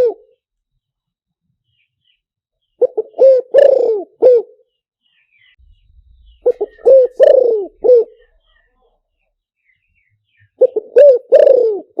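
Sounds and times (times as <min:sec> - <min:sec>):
dove cooing: 0:00.0 - 0:00.3, 0:02.8 - 0:04.7, 0:06.1 - 0:08.6, 0:10.6 - 0:12.0.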